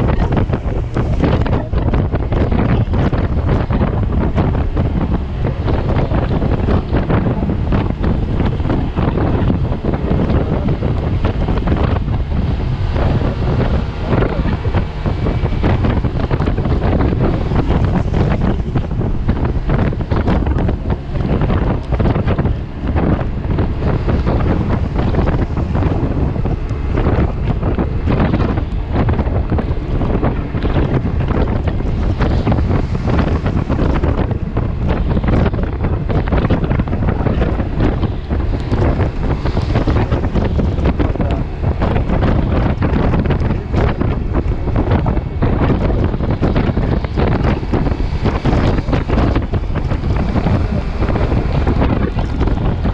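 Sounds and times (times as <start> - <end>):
wind buffeting microphone: 0.0 - 52.9
rain: 36.2 - 44.6.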